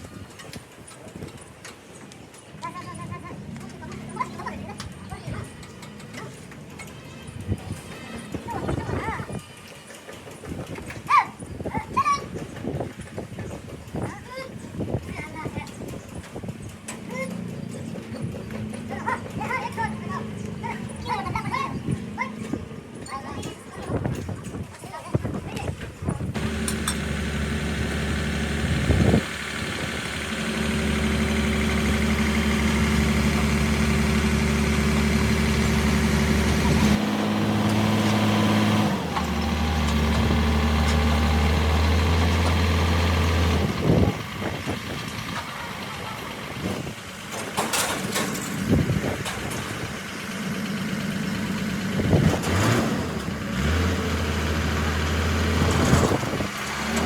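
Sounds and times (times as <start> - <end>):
heavy vehicle engine running: 26.4 - 57.0.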